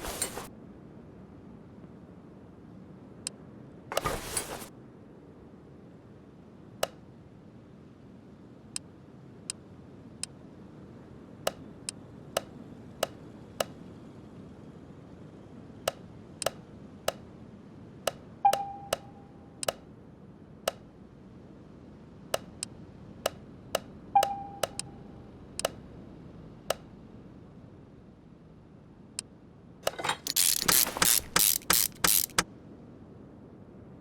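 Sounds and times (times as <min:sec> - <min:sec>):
tools clicking and tapping: 0:00.0 - 0:00.5, 0:29.8 - 0:32.4.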